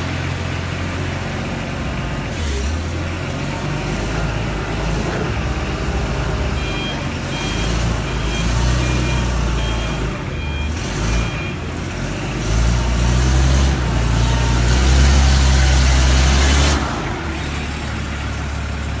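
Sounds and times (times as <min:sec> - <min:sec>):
diesel engine running and revving: 0:00.0 - 0:19.0
reversing alarm beeping: 0:03.5 - 0:16.6.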